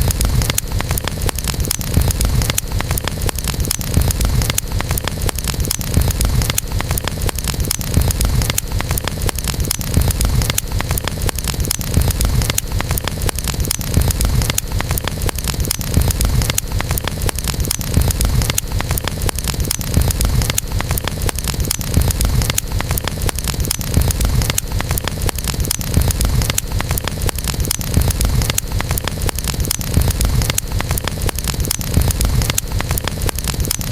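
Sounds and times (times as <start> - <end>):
campfire crackling and popping: 0.0 - 33.9.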